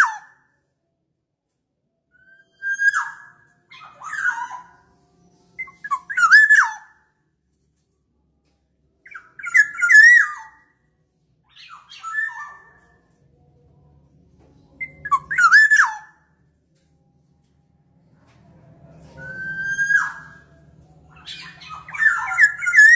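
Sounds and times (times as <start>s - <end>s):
oriole whistled calls: 2.2s - 4.8s, 5.6s - 7.0s, 9.1s - 10.7s, 11.5s - 12.9s, 14.8s - 16.3s, 19.2s - 22.9s.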